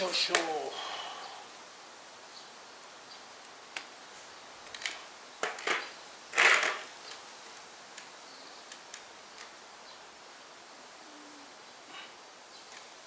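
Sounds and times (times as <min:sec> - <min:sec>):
clicks and knocks of handled parts: 0:04.6 - 0:08.1.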